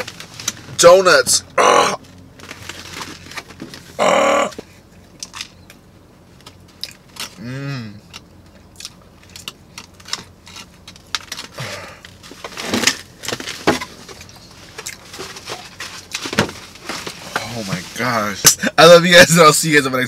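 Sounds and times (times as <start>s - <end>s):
man humming mmm: 4.0s - 4.6s, 7.4s - 8.1s
man chewing with wet mouth clicks: 6.8s - 7.3s, 8.0s - 10.0s.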